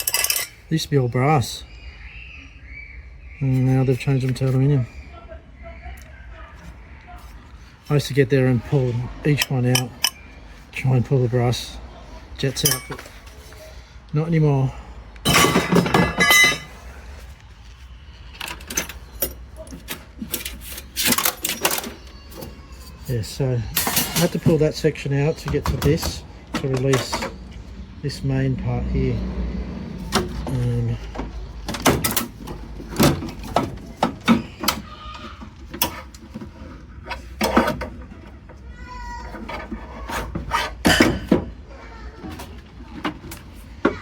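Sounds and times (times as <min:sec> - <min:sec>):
metal clanks and rattles: 0:00.0 - 0:00.7, 0:09.3 - 0:10.3, 0:12.5 - 0:13.6, 0:15.2 - 0:16.9, 0:18.3 - 0:23.1, 0:23.7 - 0:24.8, 0:30.0 - 0:41.6
metal parts clinking and rattling: 0:00.0 - 0:00.7, 0:09.3 - 0:10.3, 0:12.5 - 0:13.4, 0:15.3 - 0:16.8, 0:18.3 - 0:23.1, 0:23.8 - 0:24.6.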